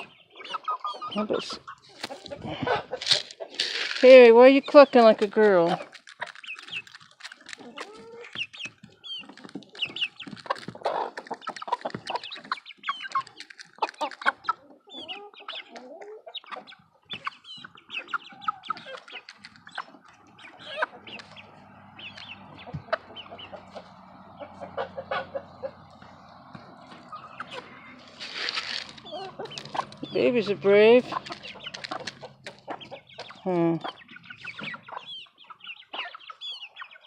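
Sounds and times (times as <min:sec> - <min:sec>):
chickens clucking: 0:00.0 - 0:37.0
young rooster clucking: 0:00.0 - 0:37.0.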